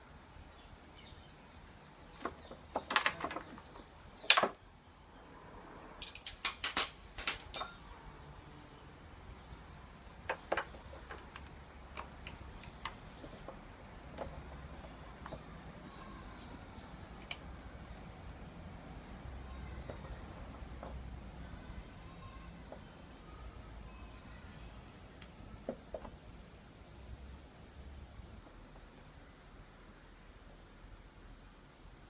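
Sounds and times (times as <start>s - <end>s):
metal tools clinking: 2.1s - 4.6s, 6.0s - 7.8s
ringing metallic taps: 6.0s - 7.8s.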